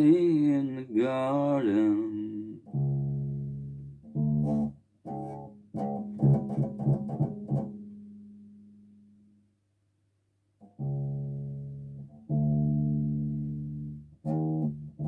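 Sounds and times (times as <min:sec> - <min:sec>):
bass guitar plucked notes: 0:01.3 - 0:08.1.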